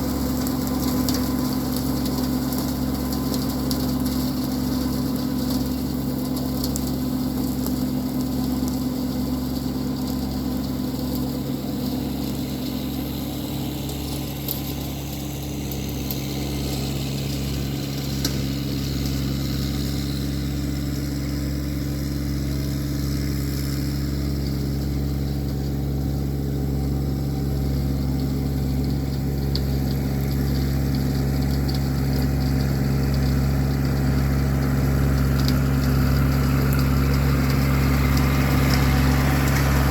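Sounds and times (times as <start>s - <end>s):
tractor engine under load: 0.0s - 39.9s
rotary brush cutter: 29.5s - 39.9s.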